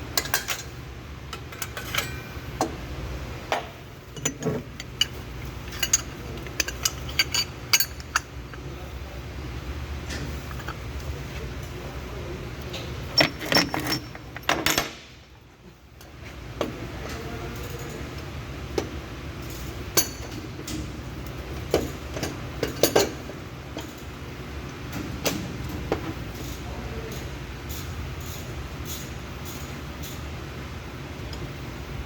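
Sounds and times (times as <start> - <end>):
steady low hum: 0.0 - 32.0
metal tools clinking: 1.5 - 2.3, 4.2 - 8.6, 13.1 - 15.0.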